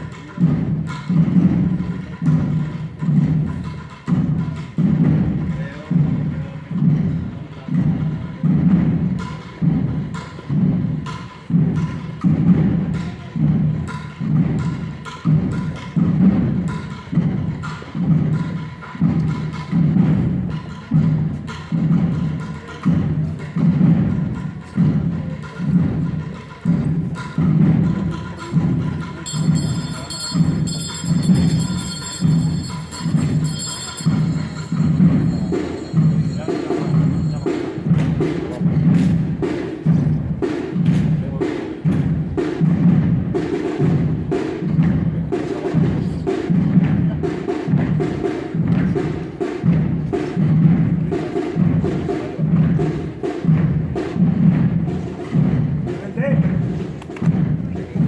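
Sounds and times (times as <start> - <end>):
deep drums beating a slow march: 0.0 - 58.0.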